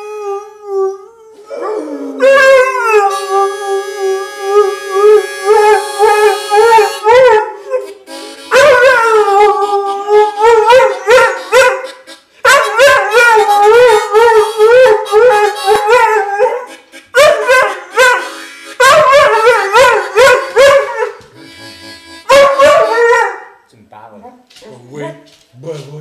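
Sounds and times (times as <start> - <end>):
dog howling: 0.0 - 7.8, 12.5 - 21.2, 22.3 - 23.5
bluesy harmonica: 1.3 - 23.5.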